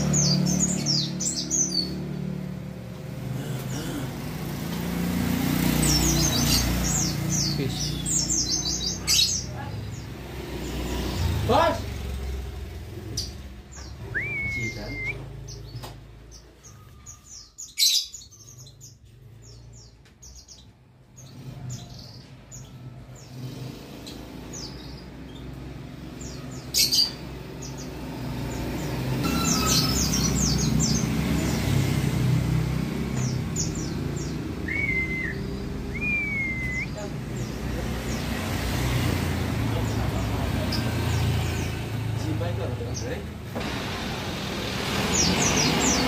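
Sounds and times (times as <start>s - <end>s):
low traffic rumble: 0.0s - 46.0s
bird high chirps and whistles: 14.0s - 15.2s, 29.2s - 30.8s, 34.6s - 37.0s.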